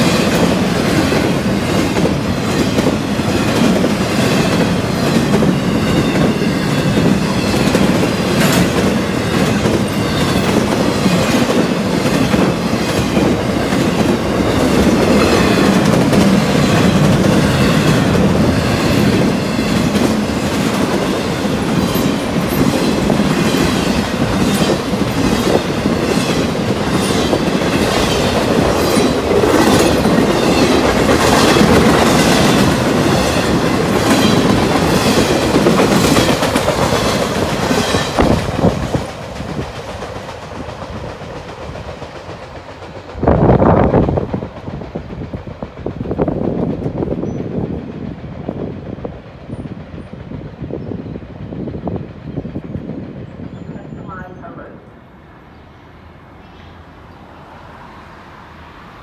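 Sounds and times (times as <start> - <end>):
wheels clicking over rail joints: 0.0 - 43.5
freight train wheels rumbling: 0.0 - 59.0.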